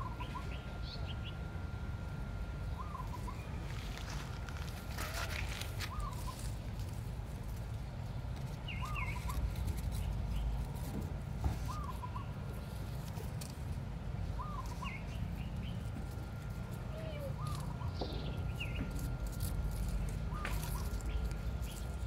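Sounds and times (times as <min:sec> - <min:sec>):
bird calling: 0:00.0 - 0:01.4, 0:02.6 - 0:07.0, 0:08.6 - 0:10.6, 0:11.5 - 0:13.2, 0:14.2 - 0:22.0
steady low rumble: 0:00.0 - 0:22.0.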